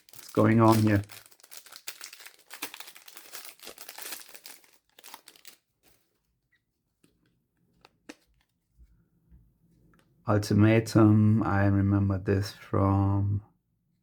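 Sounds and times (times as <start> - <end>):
wrapper crinkling: 0.0 - 6.2.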